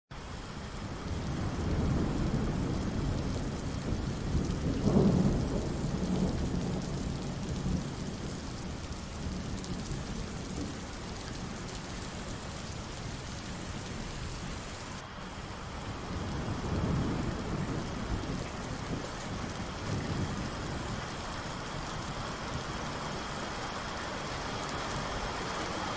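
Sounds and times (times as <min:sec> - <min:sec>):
heavy rain: 0:00.1 - 0:25.9
rolling thunder: 0:00.8 - 0:11.0, 0:16.0 - 0:22.7.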